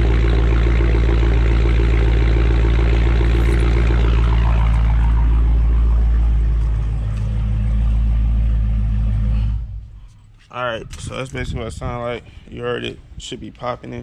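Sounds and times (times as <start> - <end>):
car engine idling: 0.0 - 10.5.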